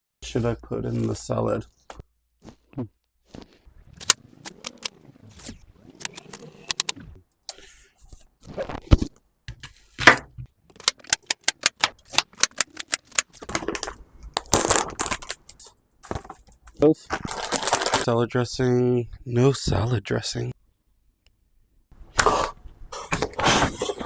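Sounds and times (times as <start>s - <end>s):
salad packaging clicks and rattles: 10.7s - 16.6s, 17.2s - 18.1s.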